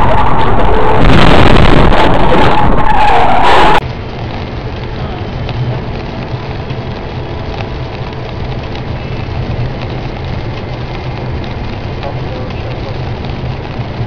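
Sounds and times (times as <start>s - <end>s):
vehicle engine and tyres rumbling: 0.0s - 14.0s
small clicks and rattles: 4.2s - 14.0s.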